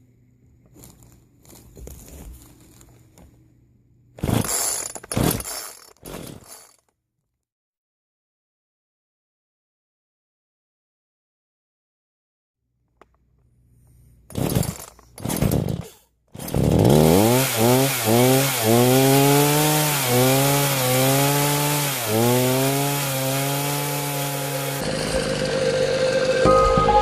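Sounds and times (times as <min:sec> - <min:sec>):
chainsaw cutting wood: 0:04.2 - 0:06.8, 0:14.3 - 0:26.6.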